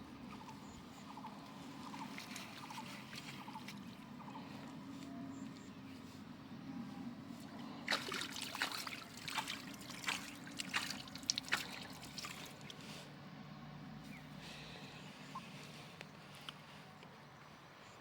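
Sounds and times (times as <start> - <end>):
water splashing and trickling: 0.0 - 5.0, 7.2 - 13.3.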